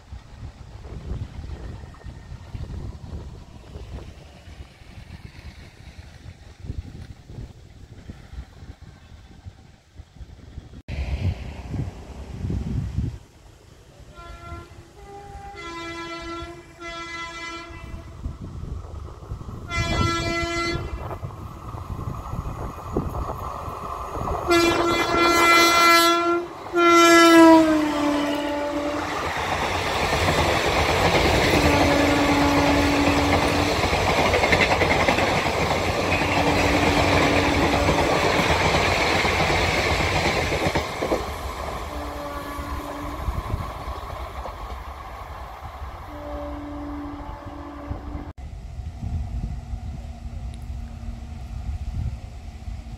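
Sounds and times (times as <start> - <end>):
train horn blasts: 14.1 - 18.4, 19.7 - 21.2, 24.5 - 29.2, 31.5 - 33.6, 41.8 - 43.5, 46.1 - 48.3
train coaches clattering over rails: 29.0 - 45.6.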